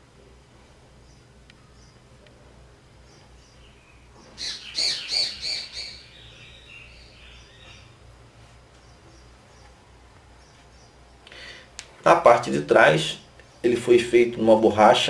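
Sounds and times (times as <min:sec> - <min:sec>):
small bird chirping: 0:01.0 - 0:02.2, 0:03.0 - 0:11.3.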